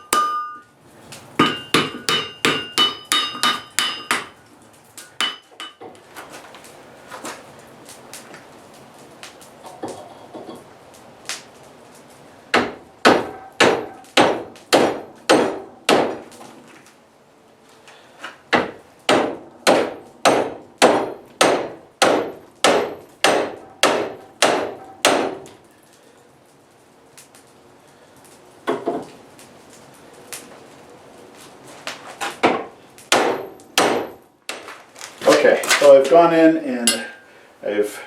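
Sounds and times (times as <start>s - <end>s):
hammer striking steel on anvil: 0.0s - 0.7s, 1.4s - 4.3s, 5.2s - 5.9s, 12.6s - 16.1s, 18.6s - 25.4s, 32.4s - 34.2s.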